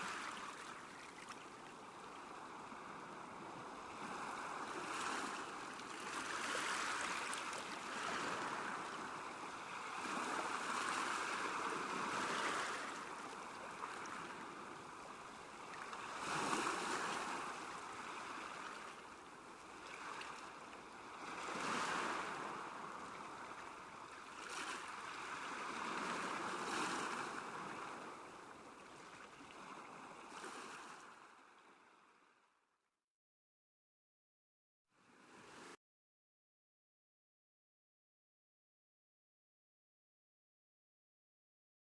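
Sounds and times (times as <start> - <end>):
small waves washing on shore: 0.0 - 32.2, 35.0 - 35.8.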